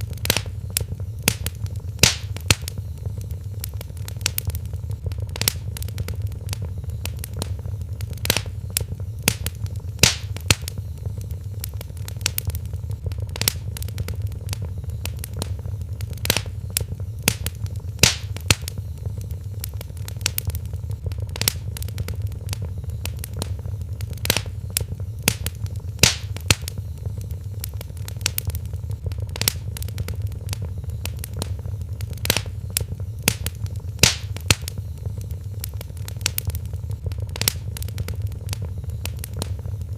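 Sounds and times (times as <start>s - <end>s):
fire crackling and popping: 0.0s - 39.9s
low rumble of burning fire: 0.0s - 39.9s.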